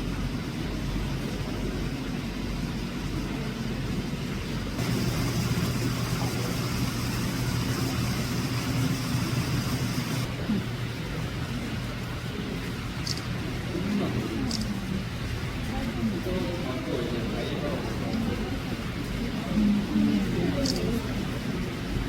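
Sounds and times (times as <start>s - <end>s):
machine hum with rushing noise: 0.0s - 16.8s
loud hiss: 4.8s - 10.4s.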